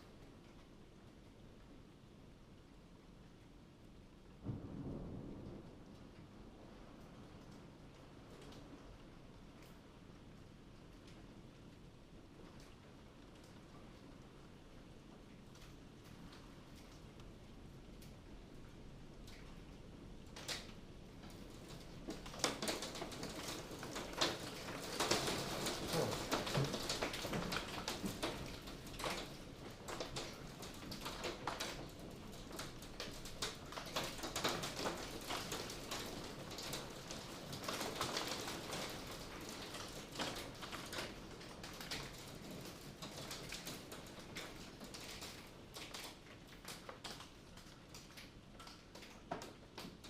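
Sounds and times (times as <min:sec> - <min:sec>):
hail rattling on hard surfaces: 0:19.3 - 0:50.0.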